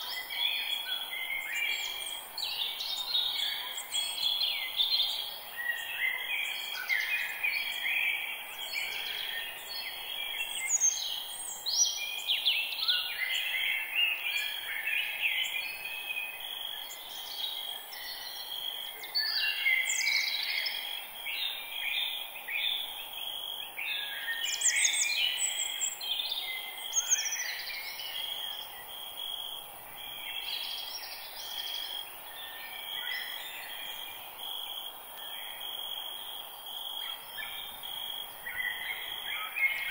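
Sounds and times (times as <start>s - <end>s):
birds singing: 0.0s - 22.9s, 23.8s - 29.0s.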